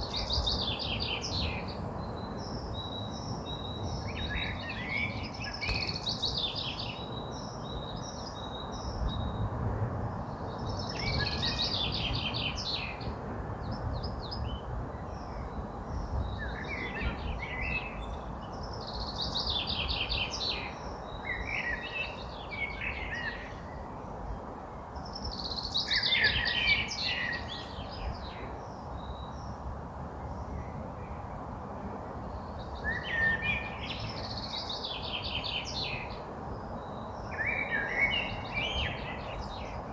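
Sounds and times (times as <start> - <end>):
songbird singing trills: 0.0 - 9.4.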